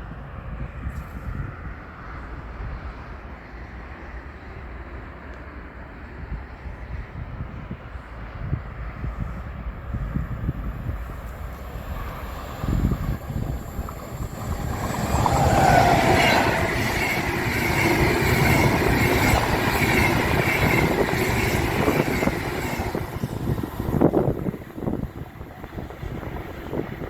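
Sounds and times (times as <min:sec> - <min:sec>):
wind buffeting microphone: 0:06.2 - 0:27.0
electric train whine: 0:08.1 - 0:27.0
wheels rumbling on rails: 0:08.1 - 0:27.0.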